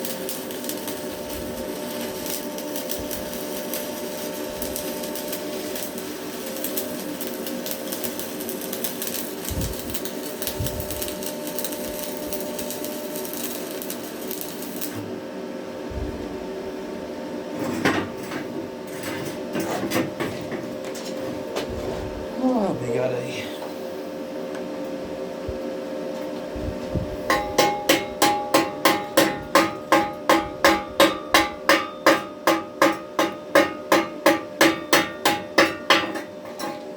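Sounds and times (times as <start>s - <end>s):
welding arc crackling and sizzling: 0.0s - 15.2s, 27.0s - 36.9s
steady hum: 0.0s - 36.9s.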